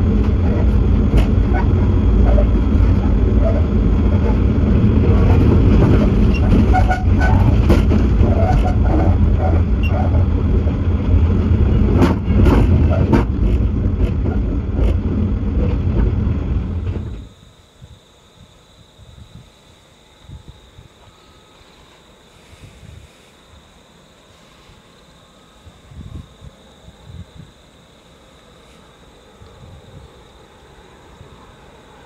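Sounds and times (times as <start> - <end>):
wheels clicking over track: 0.0 - 17.3
moving train rumble and rattle: 0.0 - 17.4, 20.3 - 32.0
faint outdoor hiss: 16.8 - 32.0.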